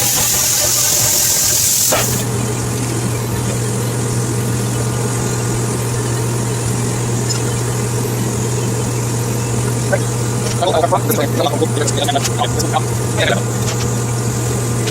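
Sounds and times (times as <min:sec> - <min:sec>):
loud high hiss: 0:00.0 - 0:02.3
mechanical motor hum: 0:00.0 - 0:14.9.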